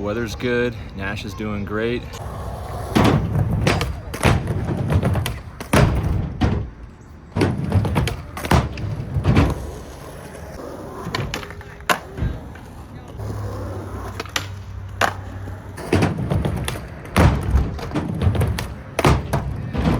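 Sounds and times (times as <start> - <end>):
skateboard rolling on concrete: 0.0 - 19.9
skateboard clacking on ground: 2.1 - 19.9.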